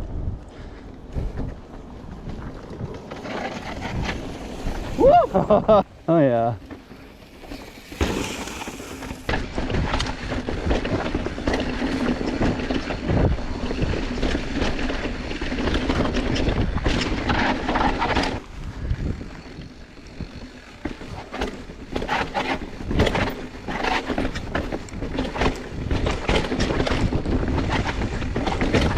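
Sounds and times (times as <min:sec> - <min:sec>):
wind buffeting microphone: 0:00.0 - 0:28.9
bike knocking and rattling: 0:00.4 - 0:28.9
tyres crunching over dirt: 0:01.1 - 0:14.4.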